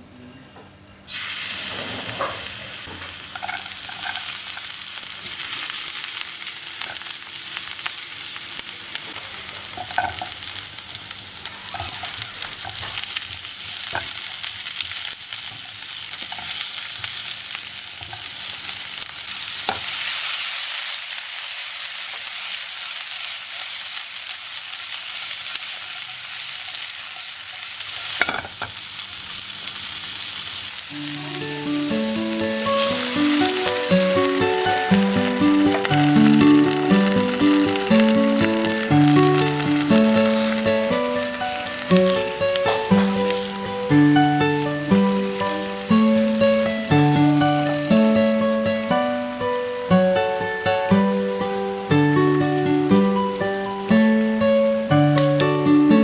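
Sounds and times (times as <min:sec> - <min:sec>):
food sizzling in hot oil: 0:01.1 - 0:56.0
utensil tapping and scraping pan: 0:11.7 - 0:13.0.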